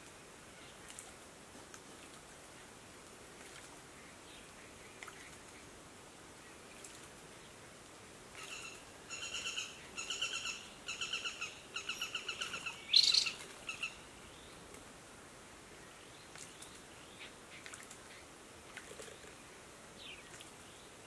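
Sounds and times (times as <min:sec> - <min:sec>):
faint water splashes: 0:00.0 - 0:09.1, 0:12.3 - 0:15.1, 0:15.8 - 0:21.0.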